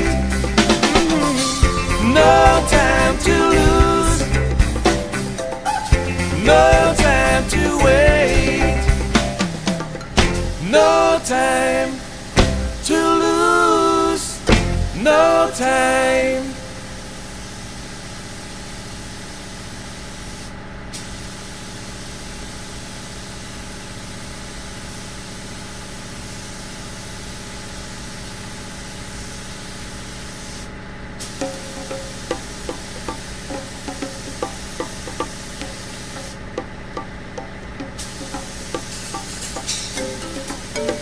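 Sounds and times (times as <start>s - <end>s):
instrumental rock music: 0.0s - 10.7s, 14.5s - 15.1s
steady hiss: 0.0s - 36.6s, 37.9s - 41.0s
rushing air hiss: 38.0s - 40.7s.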